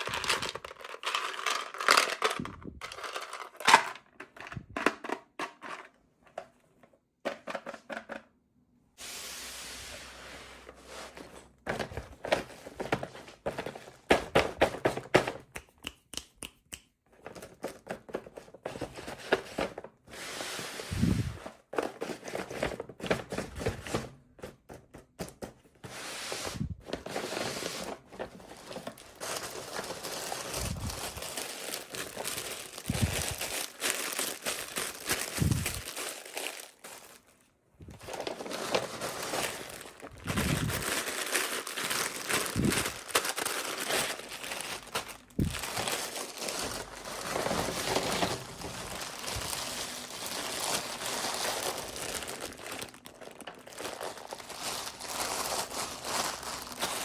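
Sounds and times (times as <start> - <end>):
wrapping crinkling and tearing: 0.0 - 3.8, 26.0 - 57.0.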